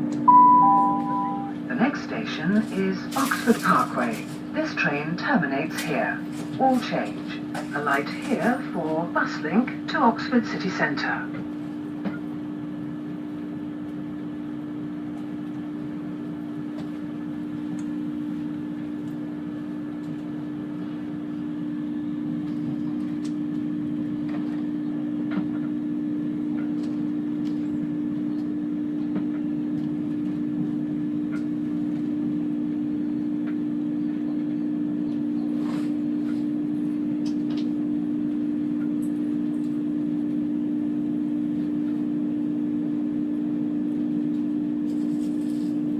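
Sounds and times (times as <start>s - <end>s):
faint high whine: 0.2s - 2.2s.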